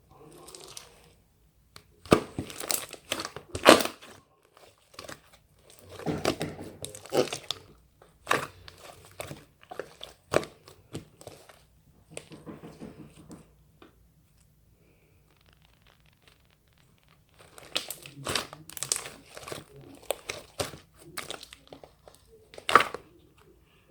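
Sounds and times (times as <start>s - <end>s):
plastic or paper crinkling: 0.1s - 1.2s, 2.0s - 13.4s, 14.9s - 23.5s.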